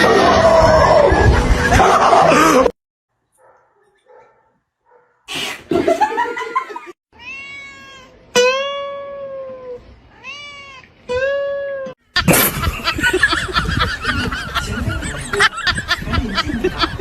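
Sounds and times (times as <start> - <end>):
cat meowing: 7.2 - 8.8, 9.4 - 10.9.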